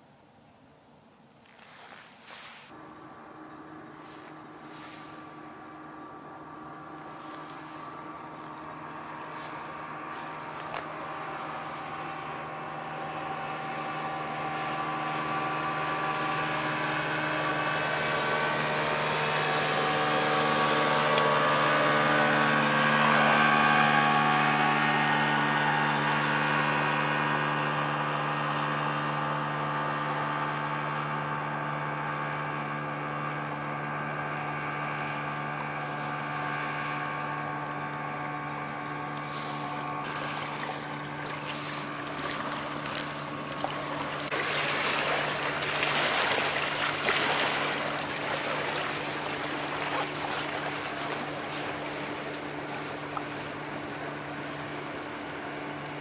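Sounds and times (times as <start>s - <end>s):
rushing noise with crackles: 1.4s - 14.0s
ship diesel engines humming: 2.7s - 56.0s.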